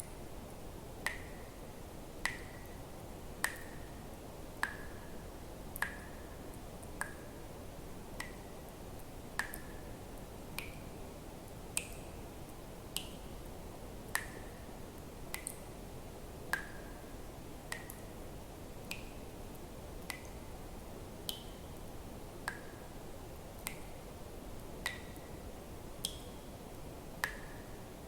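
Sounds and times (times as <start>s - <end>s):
faint steady hiss: 0.0s - 28.0s
water drops plinking into water: 1.0s - 1.5s, 2.2s - 2.8s, 3.4s - 4.0s, 4.6s - 5.0s, 9.4s - 9.9s, 17.7s - 18.1s, 20.0s - 20.4s, 24.8s - 25.3s, 26.0s - 26.4s.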